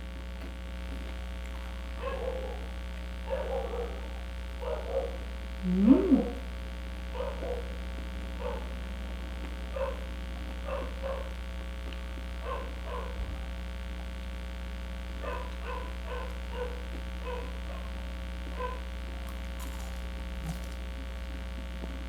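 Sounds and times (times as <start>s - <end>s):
electrical hum: 0.0s - 22.0s
chewing crispy food: 15.4s - 22.0s.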